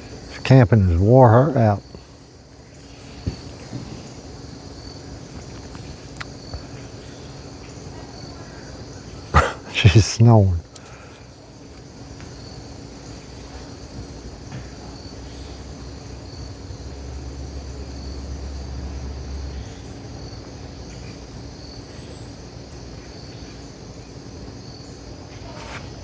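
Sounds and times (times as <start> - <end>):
insects chirping: 0.0 - 26.0.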